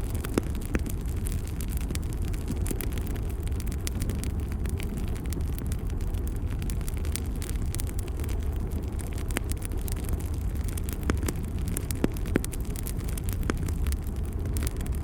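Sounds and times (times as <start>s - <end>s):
fire crackling and popping: 0.0s - 15.0s
fire rumbling: 0.0s - 15.0s.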